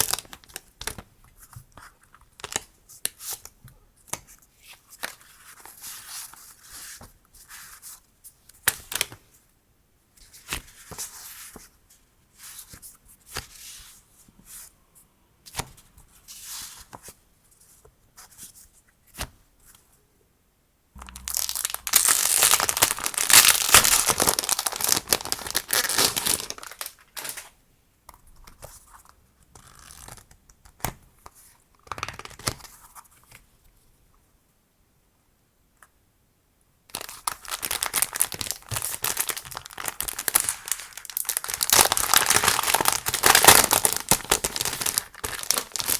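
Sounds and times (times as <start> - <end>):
packaging crinkling: 21.2 - 27.5, 37.0 - 45.9
packaging tearing: 21.3 - 27.5, 37.0 - 45.9.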